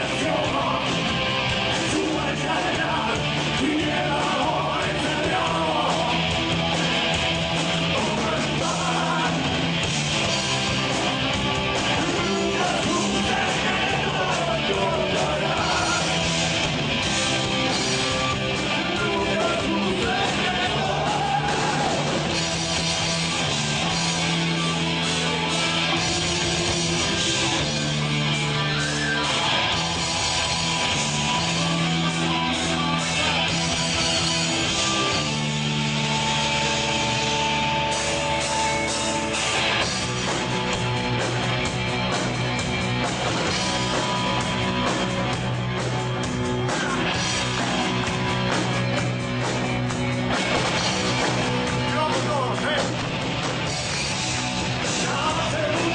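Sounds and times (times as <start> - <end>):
distorted rock band playing: 0.0 - 55.9
person singing: 1.8 - 6.3, 7.9 - 9.5, 11.9 - 16.2, 18.7 - 22.1, 54.8 - 55.9.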